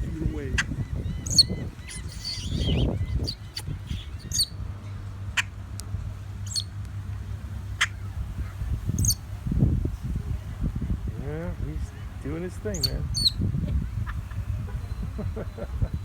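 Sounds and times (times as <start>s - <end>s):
steady low rumble: 0.0s - 16.0s
bird squeaky calls and clicks: 0.6s - 4.6s, 5.3s - 7.0s, 7.8s - 8.1s, 8.9s - 9.2s, 12.7s - 15.2s.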